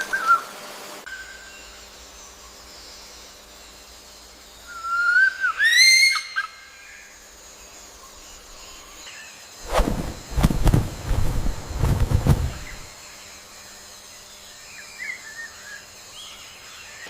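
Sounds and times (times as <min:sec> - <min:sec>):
gusts of rushing noise: 0:09.6 - 0:12.9.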